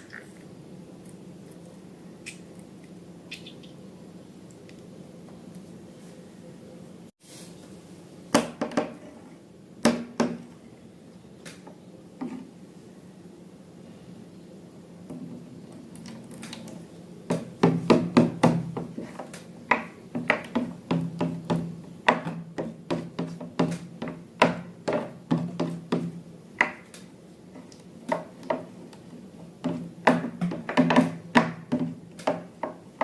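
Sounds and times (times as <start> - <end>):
sharp taps and knocks: 17.3 - 27.1, 29.6 - 33.0.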